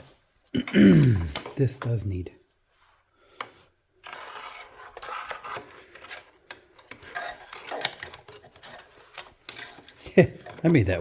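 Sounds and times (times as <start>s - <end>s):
rubbing and scraping: 2.6s - 11.0s.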